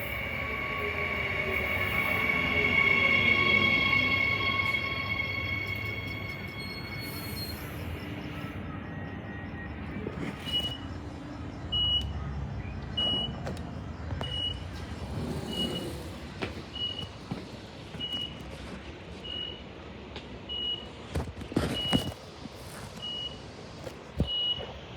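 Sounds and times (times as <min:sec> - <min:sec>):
high whine: 0:00.0 - 0:10.4.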